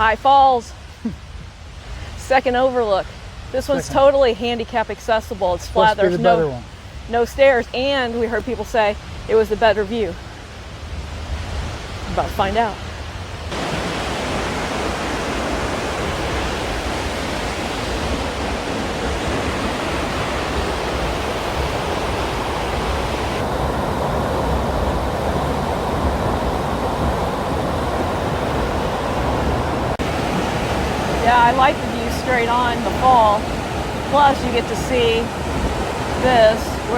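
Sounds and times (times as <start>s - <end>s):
waterfall rushing: 5.6s - 6.8s, 11.4s - 36.9s.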